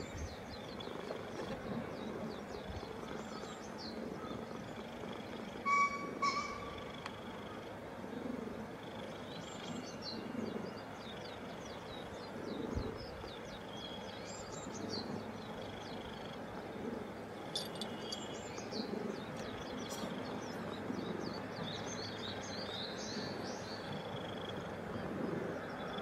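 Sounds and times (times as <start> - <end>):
birds calling: 0.0 - 7.8, 8.7 - 26.0
steady background hiss: 0.0 - 26.0.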